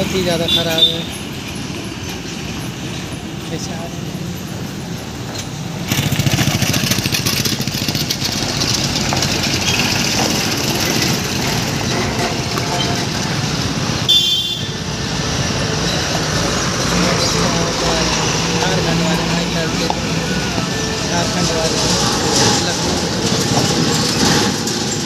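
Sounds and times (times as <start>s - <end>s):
road noise on rough road: 0.0s - 25.0s
truck engine running: 4.4s - 25.0s
short horn toot: 14.1s - 14.8s.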